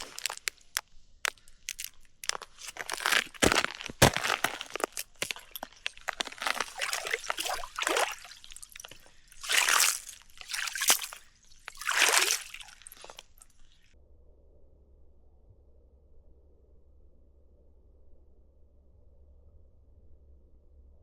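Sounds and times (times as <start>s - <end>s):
water sloshing and splashing: 0.0s - 13.8s.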